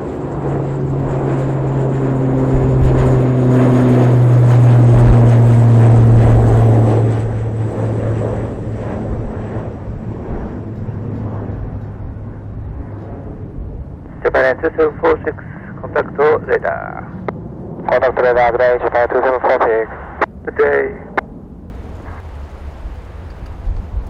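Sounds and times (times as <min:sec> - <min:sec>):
wind rumbling on microphone: 0:00.0 - 0:15.8, 0:21.1 - 0:24.0
airliner taking off: 0:00.0 - 0:24.0.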